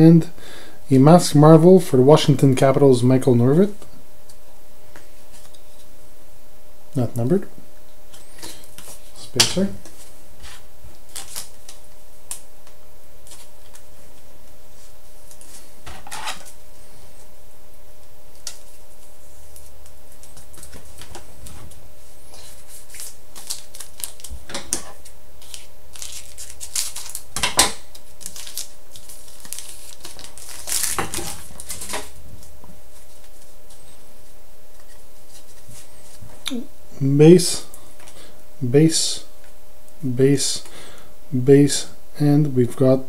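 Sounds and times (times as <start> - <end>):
foil card pack tearing: 11.1 - 11.8, 22.5 - 24.4, 25.4 - 27.3, 27.9 - 32.1.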